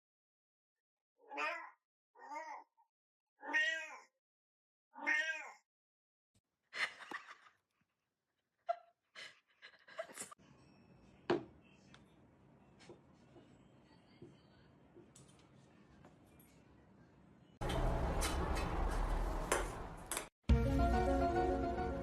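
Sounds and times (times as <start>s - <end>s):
cat meowing: 1.2s - 2.7s, 3.4s - 4.1s, 5.0s - 5.6s.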